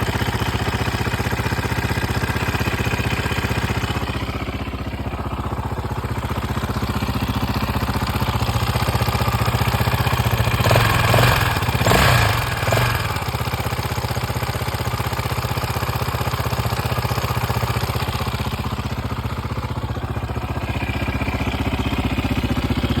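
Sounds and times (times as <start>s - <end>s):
motorcycle engine idling and blipping: 0.0s - 23.0s.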